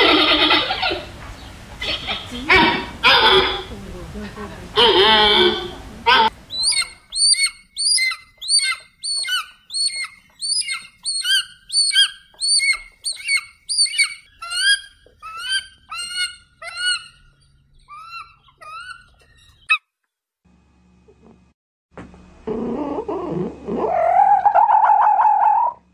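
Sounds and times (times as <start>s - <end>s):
eagle whistled chittering calls: 4.8s - 19.8s.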